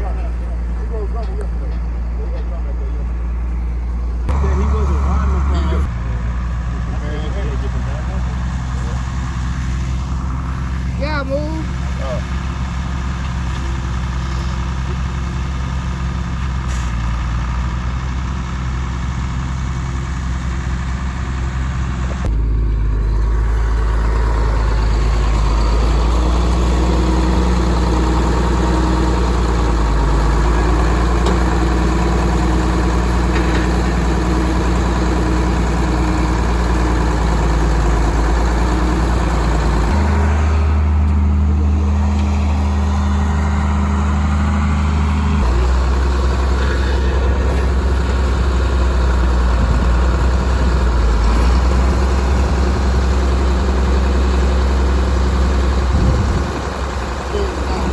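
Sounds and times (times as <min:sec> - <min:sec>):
vehicle engine humming: 0:00.0 - 0:57.9.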